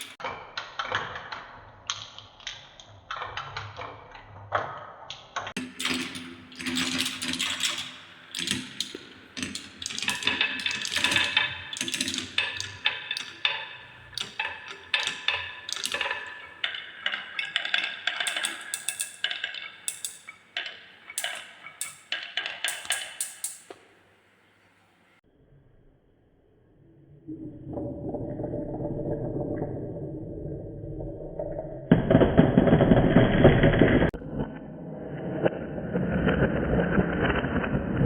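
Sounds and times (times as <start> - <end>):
marbles rattling down wooden run: 5.6 - 23.6.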